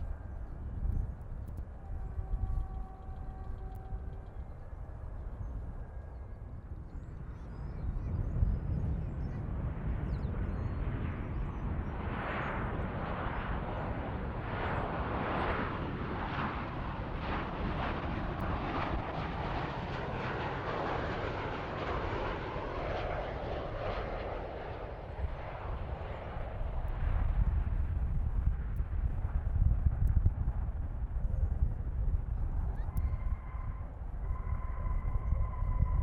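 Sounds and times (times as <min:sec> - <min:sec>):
jet engines passing: 0:00.0 - 0:36.0
steady low rumble: 0:13.8 - 0:36.0.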